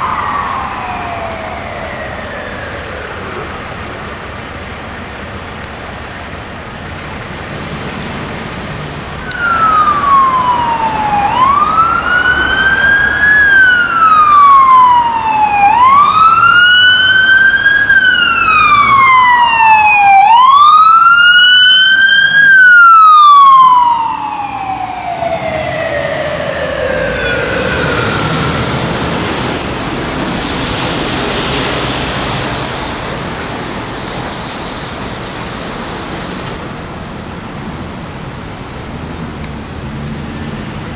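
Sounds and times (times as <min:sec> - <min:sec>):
siren wailing: 0:00.0 - 0:04.8, 0:09.1 - 0:33.7
faint siren: 0:00.0 - 0:05.7, 0:09.1 - 0:33.9
traffic noise: 0:00.0 - 0:40.9.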